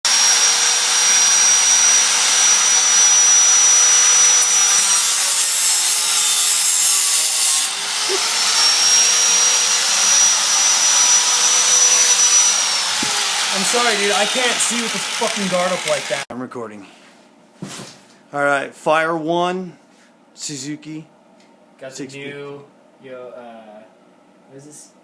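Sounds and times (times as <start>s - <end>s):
grinder cutting metal exhaust: 0.1s - 16.2s
angle grinder whining: 0.1s - 16.3s.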